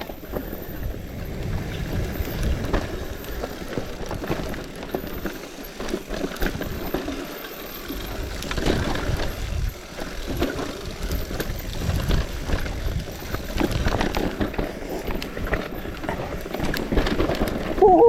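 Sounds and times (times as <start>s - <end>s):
road rumble: 0.0s - 7.0s
small clicks and rattles: 0.0s - 18.0s
wind buffeting microphone: 0.2s - 4.6s, 8.1s - 14.3s.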